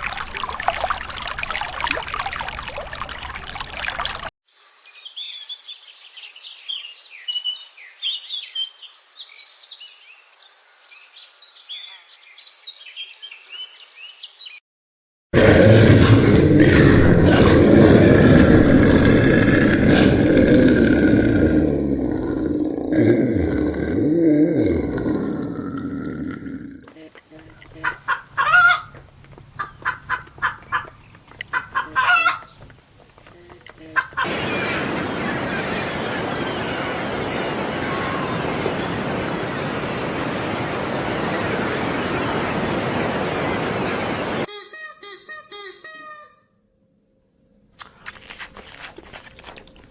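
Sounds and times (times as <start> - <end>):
large animal roaring: 15.4 - 26.9
low rising and falling animal call: 15.4 - 28.9.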